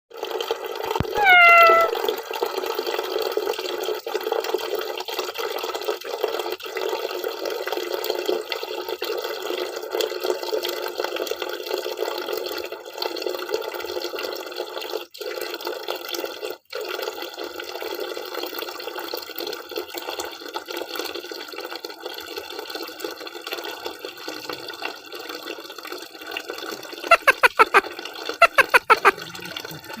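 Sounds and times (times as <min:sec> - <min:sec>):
cat meowing: 0:01.0 - 0:01.9, 0:27.1 - 0:27.8, 0:28.4 - 0:29.2.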